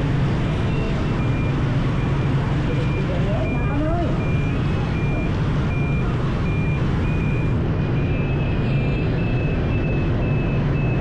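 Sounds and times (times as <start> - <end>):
traffic rumble: 0.0 - 11.0
wind: 0.0 - 11.0.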